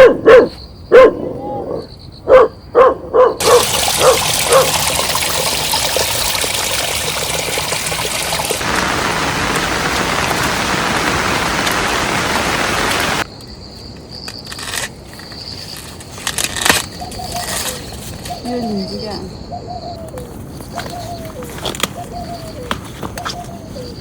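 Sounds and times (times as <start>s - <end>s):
dog barking: 0.0s - 4.8s
heavy rain falling: 7.1s - 13.3s.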